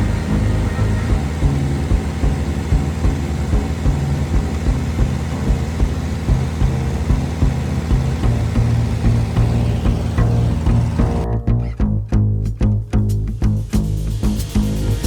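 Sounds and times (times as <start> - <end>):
propeller plane engine drone: 0.0 - 11.3
background music with bass line: 0.0 - 15.0.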